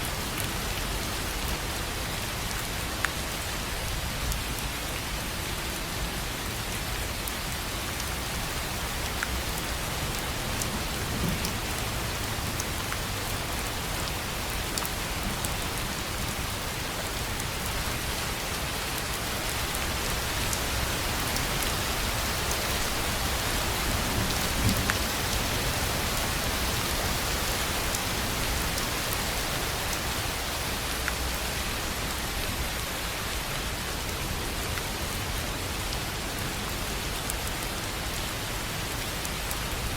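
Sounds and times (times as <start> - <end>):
rain drumming on a tin roof: 0.0 - 39.9.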